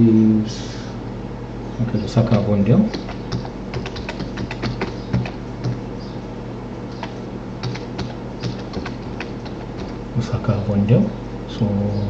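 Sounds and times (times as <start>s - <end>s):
steady low hum: 0.0s - 12.0s
typing on computer keyboard: 2.2s - 5.8s, 6.9s - 10.0s.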